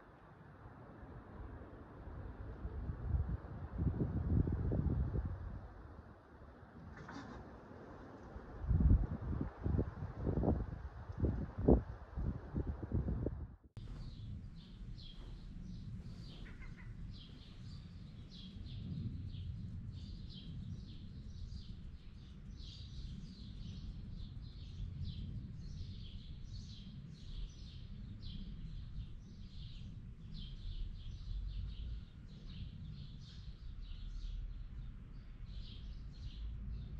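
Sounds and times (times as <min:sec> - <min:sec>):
low steady rumble: 0:08.3 - 0:36.9
small birds chirping: 0:13.8 - 0:36.9.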